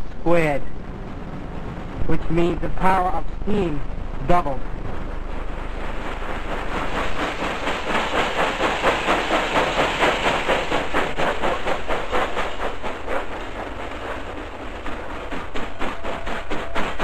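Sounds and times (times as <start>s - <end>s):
steam locomotive chuffing: 0.0s - 17.0s
steam hissing: 5.0s - 17.0s.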